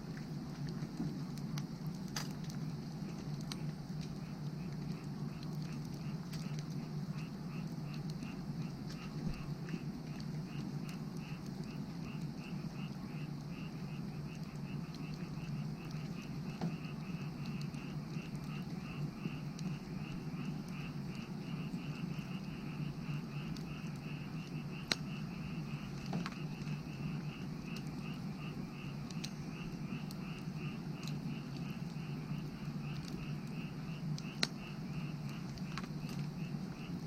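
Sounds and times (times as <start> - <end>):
frogs calling: 0.0 - 37.0
wood fire crackling: 0.0 - 37.0
sharp pops of fire: 0.9 - 12.4, 29.0 - 36.4.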